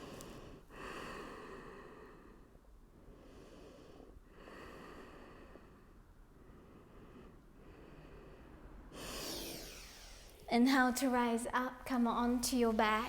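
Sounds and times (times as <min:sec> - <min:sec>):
person breathing slowly: 0:00.0 - 0:10.4.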